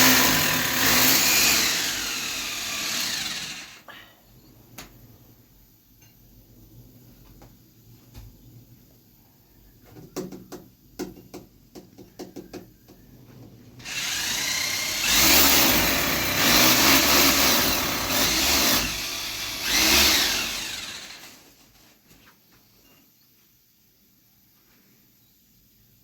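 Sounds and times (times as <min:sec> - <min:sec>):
electric power drill running: 0:00.0 - 0:03.8, 0:13.8 - 0:21.5.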